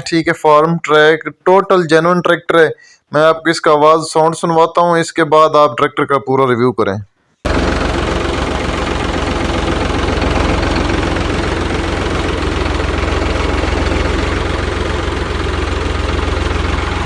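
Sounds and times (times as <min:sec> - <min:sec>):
tractor diesel engine idling: 0:07.5 - 0:17.0.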